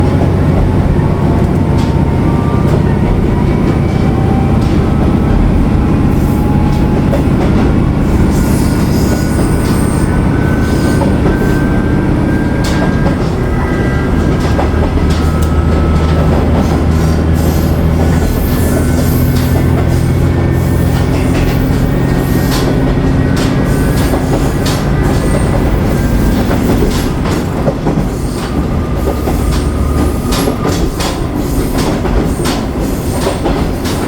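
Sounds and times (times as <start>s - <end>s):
diesel railcar rumble and hum: 0.0s - 34.0s
wheel squeals: 1.8s - 34.0s
wheels clicking over rails: 12.5s - 34.0s.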